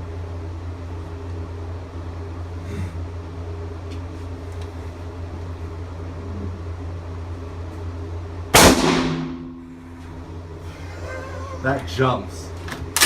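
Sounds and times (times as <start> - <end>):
ventilation hum: 0.0 - 13.0
rifle shot with reverb: 8.6 - 9.6.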